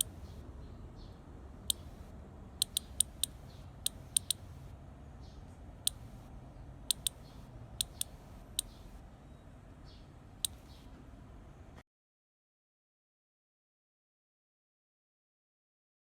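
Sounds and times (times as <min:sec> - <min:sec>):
cicada clicks: 0:00.0 - 0:00.4, 0:01.6 - 0:04.7, 0:05.9 - 0:06.2, 0:06.9 - 0:09.0, 0:10.4 - 0:10.9.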